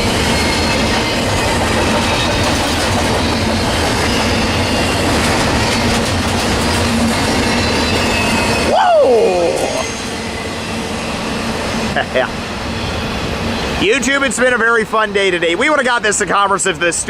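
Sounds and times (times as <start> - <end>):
train wheels clattering on rails: 0.0 - 11.7
high squealing wheels: 0.0 - 15.6.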